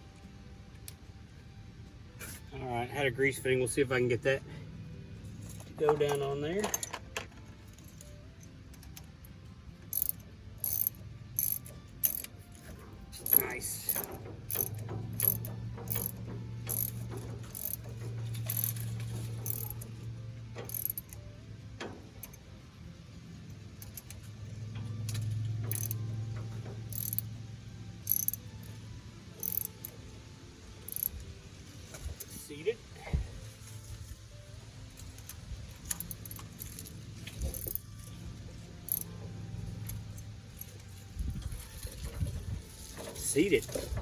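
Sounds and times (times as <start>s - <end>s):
ratchet wrench clicking: 9.8s - 21.3s, 23.8s - 24.3s, 25.0s - 27.4s, 28.0s - 29.9s, 30.8s - 31.2s, 35.0s - 38.2s, 38.8s - 39.2s.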